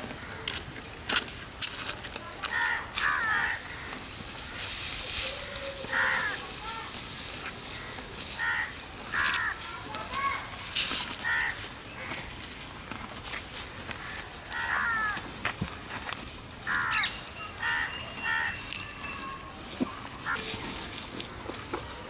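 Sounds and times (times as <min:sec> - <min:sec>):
crows cawing: 0:02.4 - 0:12.3, 0:13.9 - 0:15.9, 0:16.6 - 0:20.6.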